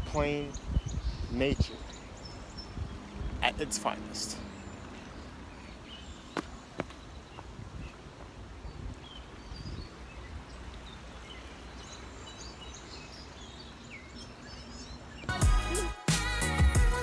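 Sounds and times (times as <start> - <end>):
small birds chirping: 0.0 - 15.3
music: 15.3 - 17.0.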